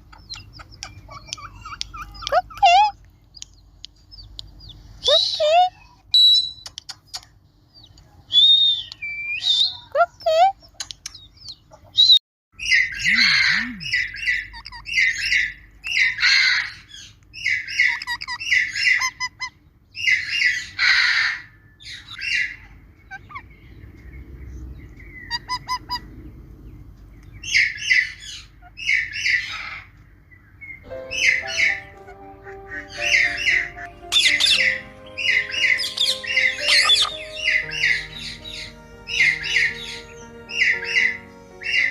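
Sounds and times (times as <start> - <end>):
parrot squawking and chattering: 0.0 - 3.0, 11.7 - 23.5, 25.2 - 26.1, 31.0 - 41.9
background music: 30.9 - 41.9.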